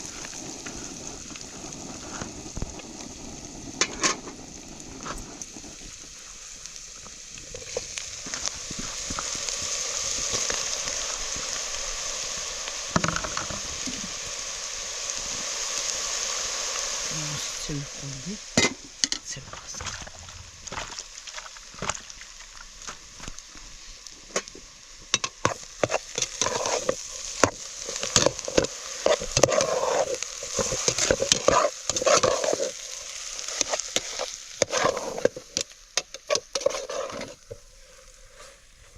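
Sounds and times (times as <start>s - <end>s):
food sizzling in a pan: 0.0s - 38.9s
utensil scraping a pan: 25.2s - 32.9s, 33.5s - 38.9s.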